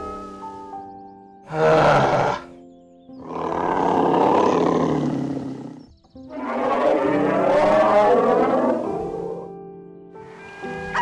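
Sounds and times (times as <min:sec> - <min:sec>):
soft background music: 0:00.0 - 0:11.0
tiger roaring: 0:01.5 - 0:02.5, 0:03.2 - 0:09.5.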